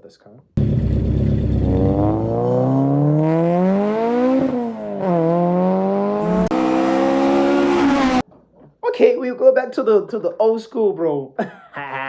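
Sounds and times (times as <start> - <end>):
man imitating engine noise: 1.6 - 3.6.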